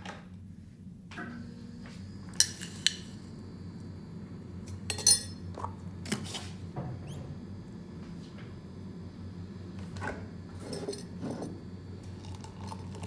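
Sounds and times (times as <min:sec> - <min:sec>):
low steady hum: 0:00.4 - 0:13.0
dishes and cutlery clinking: 0:04.9 - 0:05.4, 0:10.6 - 0:11.5.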